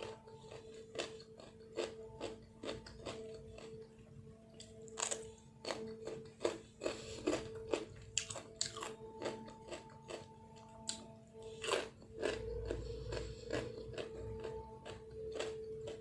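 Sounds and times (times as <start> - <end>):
chewing and crunching food: 0.0 - 16.0
faint steady hum: 0.0 - 16.0.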